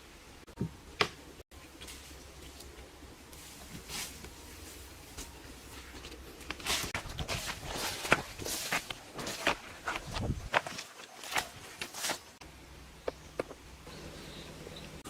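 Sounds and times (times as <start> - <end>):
rustles and scrapes of handling: 1.6 - 12.4.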